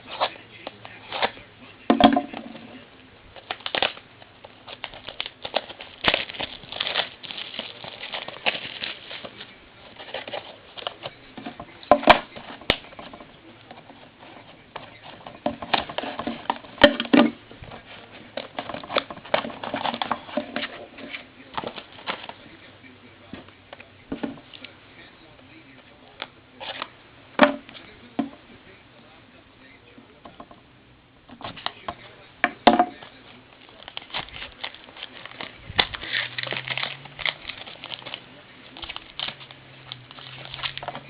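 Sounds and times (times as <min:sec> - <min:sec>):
cardboard rustling and clicking: 0:00.0 - 0:22.6, 0:26.1 - 0:28.4, 0:31.3 - 0:41.0
plastic wrap crinkling: 0:02.1 - 0:23.4, 0:32.8 - 0:41.0.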